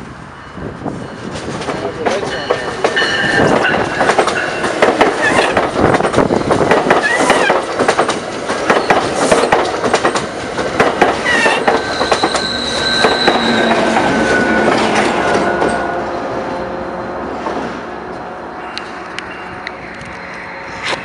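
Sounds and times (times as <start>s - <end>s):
wheels clacking over rail joints: 1.3s - 15.9s
wheel squeals: 11.2s - 15.6s.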